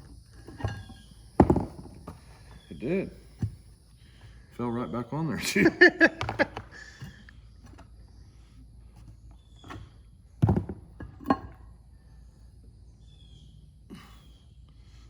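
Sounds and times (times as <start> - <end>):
knocks on workbench: 1.4 - 2.0.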